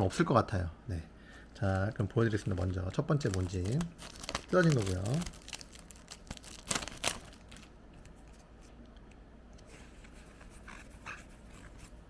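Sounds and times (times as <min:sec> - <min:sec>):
wrapper crinkling: 0:01.9 - 0:08.3.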